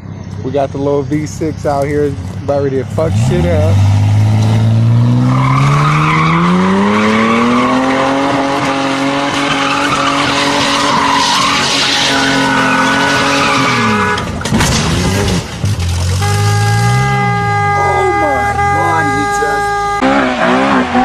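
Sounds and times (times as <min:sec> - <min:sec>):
car engine revving: 0:00.5 - 0:21.0
tyres squealing: 0:09.4 - 0:14.4, 0:16.2 - 0:21.0.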